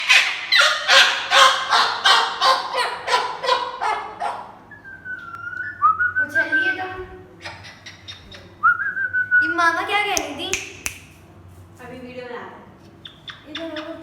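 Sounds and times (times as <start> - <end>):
cockatoo screaming: 0.0 - 4.5
thin wavering whistle: 4.7 - 6.7.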